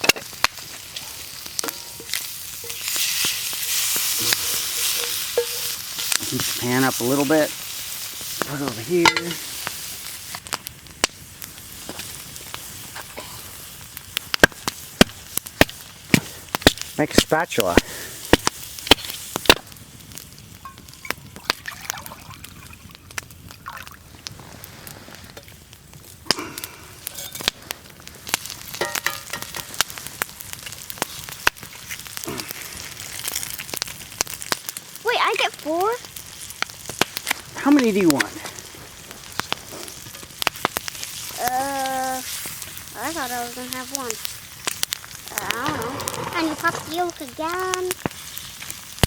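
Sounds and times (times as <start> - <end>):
bacon sizzling: 0.0 - 49.0
wood fire crackling and popping: 0.0 - 49.0
scraping in pan: 1.0 - 7.2, 27.0 - 27.7, 45.5 - 47.2.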